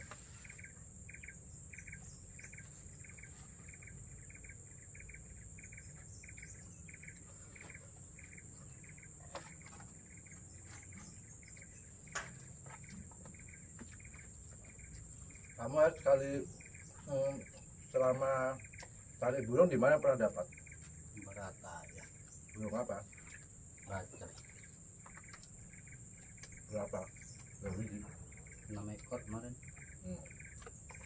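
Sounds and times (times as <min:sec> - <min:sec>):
insect short chirps: 0:00.0 - 0:31.0
insects trilling: 0:00.0 - 0:31.0.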